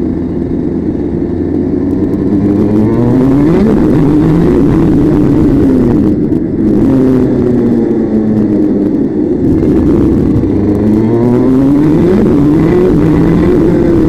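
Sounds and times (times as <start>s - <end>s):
loud vehicle engine: 0.0s - 14.0s.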